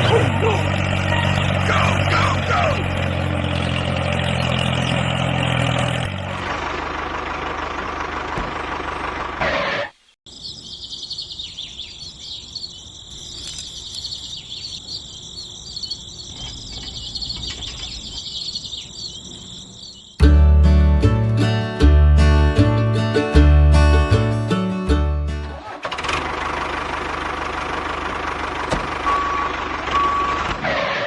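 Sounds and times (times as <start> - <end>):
birds chirping: 0.0 - 5.4, 7.4 - 20.3
small tractor motor humming: 0.0 - 9.5, 25.5 - 30.6
insects chirping: 10.0 - 20.2.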